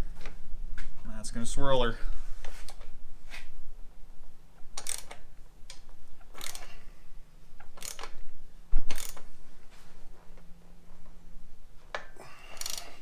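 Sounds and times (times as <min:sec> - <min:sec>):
ratchet wrench clicking: 0:04.8 - 0:06.7, 0:07.6 - 0:08.2, 0:08.9 - 0:09.3, 0:12.5 - 0:13.0.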